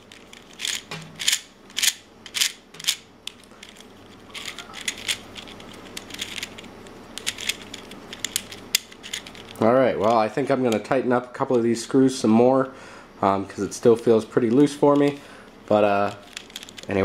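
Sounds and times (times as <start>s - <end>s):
plastic puzzle pieces clicking: 0.1s - 6.6s, 7.2s - 9.6s, 16.2s - 17.0s.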